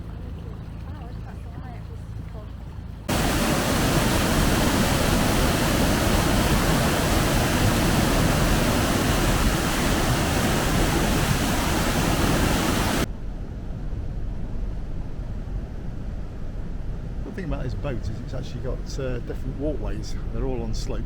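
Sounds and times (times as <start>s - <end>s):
loud rushing noise: 3.1s - 13.1s.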